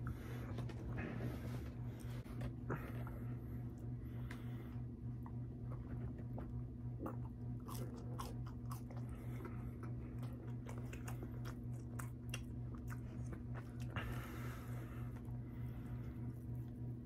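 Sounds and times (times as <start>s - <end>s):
steady low hum: 0.0s - 17.0s
person chewing with crunches: 5.2s - 17.0s.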